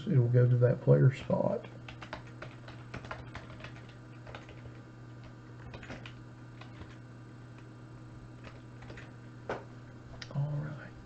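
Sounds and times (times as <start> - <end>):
steady low hum: 0.0 - 11.0
computer keyboard clicks: 1.9 - 4.8, 5.6 - 7.0, 8.4 - 9.1.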